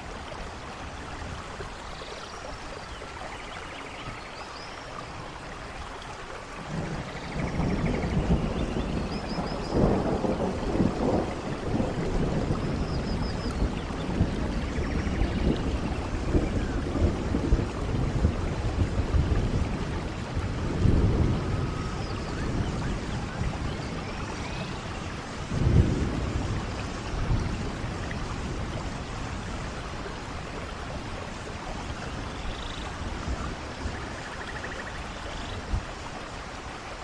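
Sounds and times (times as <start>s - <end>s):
steady rain: 0.0s - 37.0s
thunder rumbling: 6.6s - 35.0s.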